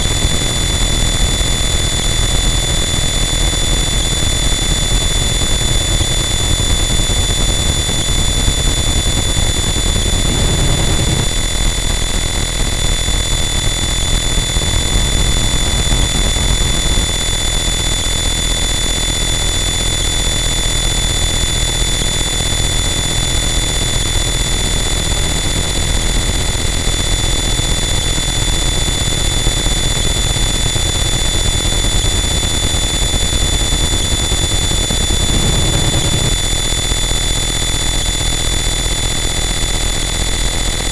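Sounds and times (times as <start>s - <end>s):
high-pitched whines: 0.0s - 40.9s
dense distorted noise: 8.2s - 12.7s, 33.6s - 36.8s.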